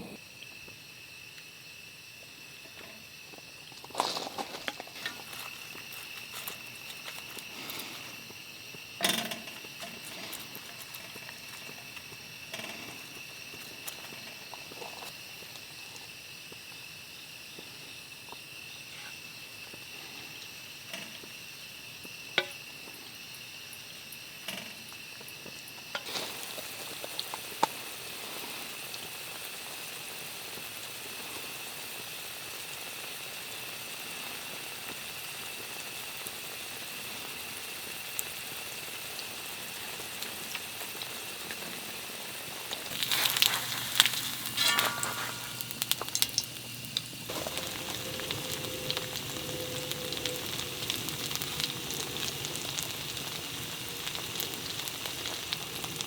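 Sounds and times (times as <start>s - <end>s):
pancake frying in a pan: 0.0s - 56.0s
cooking utensils clicking: 9.0s - 13.2s.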